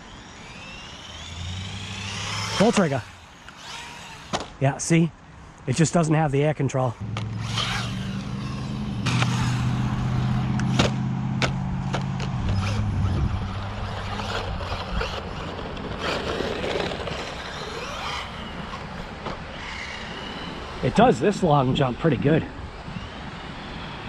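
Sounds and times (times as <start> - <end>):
rc car motor whine: 0.0 - 5.0, 6.4 - 24.0
steady low hum: 0.0 - 24.0
rc car hitting the ground: 0.4 - 4.6, 7.2 - 9.9, 10.6 - 12.8, 13.9 - 19.4.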